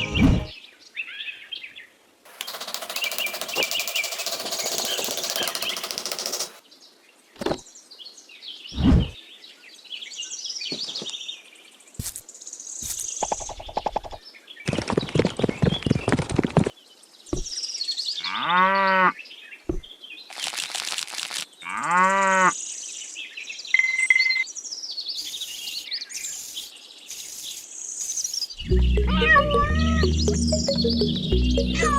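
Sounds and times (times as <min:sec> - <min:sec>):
clicks and knocks: 0:02.3 - 0:06.6
rapid buzzing rattle: 0:02.3 - 0:06.6
bird chirps: 0:23.6 - 0:31.9.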